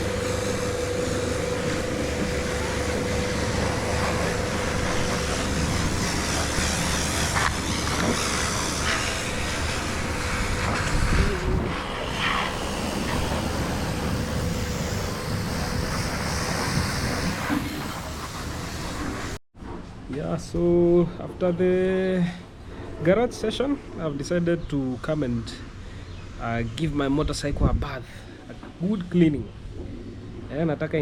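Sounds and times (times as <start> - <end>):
low engine surge: 0.0 - 19.4
road and wind noise: 0.0 - 20.0.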